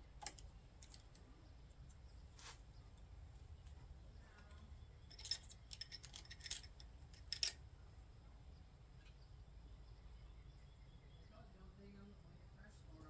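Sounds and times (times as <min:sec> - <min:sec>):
metallic clinks of hand tools: 0:05.1 - 0:07.6.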